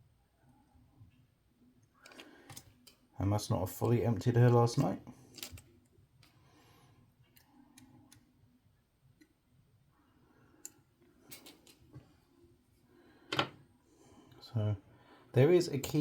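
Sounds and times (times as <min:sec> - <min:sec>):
handling of small plastic parts: 0:05.2 - 0:06.4.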